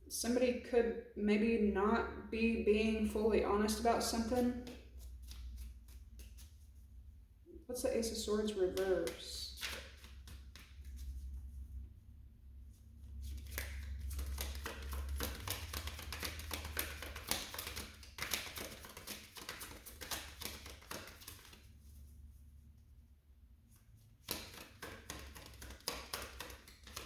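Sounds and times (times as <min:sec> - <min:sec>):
cards being shuffled: 0:04.3 - 0:06.7, 0:08.7 - 0:11.3, 0:13.1 - 0:21.7, 0:24.2 - 0:27.0.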